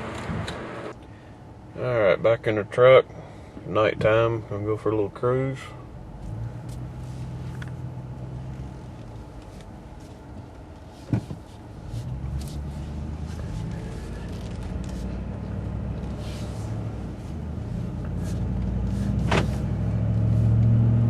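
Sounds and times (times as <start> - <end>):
truck exhaust revving: 12.0 - 21.0.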